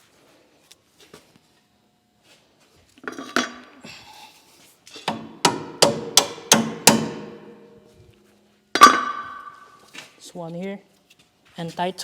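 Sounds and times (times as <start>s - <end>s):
hammer striking steel: 5.1s - 7.7s, 8.8s - 9.7s.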